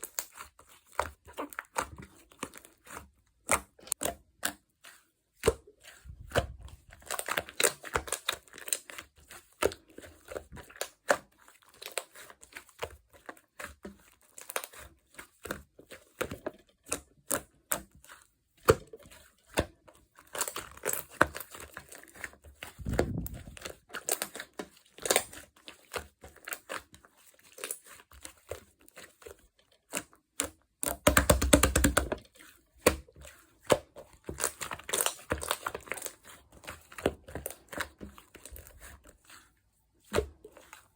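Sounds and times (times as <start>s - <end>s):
slime squished by hand: 5.4s - 8.5s, 20.2s - 25.4s.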